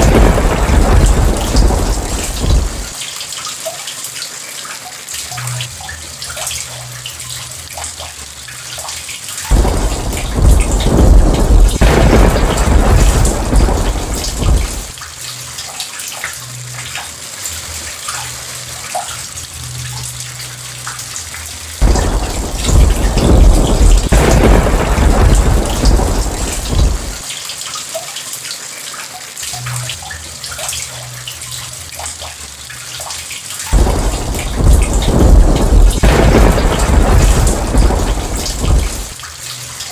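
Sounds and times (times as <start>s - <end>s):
thunder rolling: 0.0s - 3.0s, 9.5s - 15.0s, 21.8s - 27.2s, 33.7s - 39.2s
heavy rain falling: 0.0s - 39.9s.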